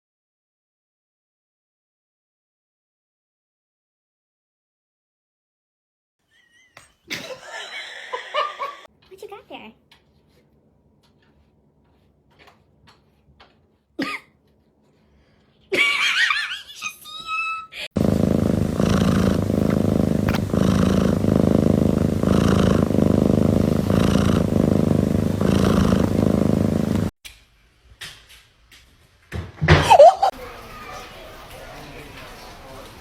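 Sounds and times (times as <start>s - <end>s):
cat purring: 17.8s - 27.1s.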